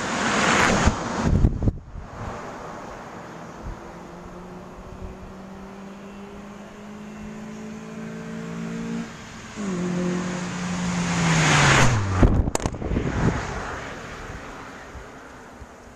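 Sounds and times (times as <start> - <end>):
tyre and wind noise: 0.0 - 2.8, 11.6 - 15.9.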